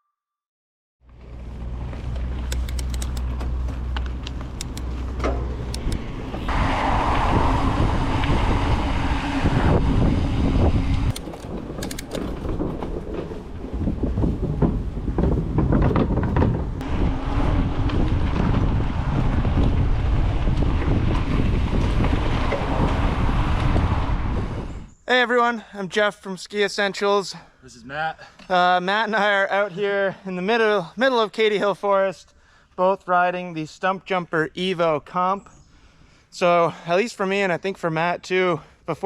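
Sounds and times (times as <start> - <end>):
bike rattles and clicks: 1.1 - 6.5, 11.1 - 16.8, 17.4 - 23.8
low rumble: 1.1 - 24.8
wind buffeting microphone: 5.4 - 25.0.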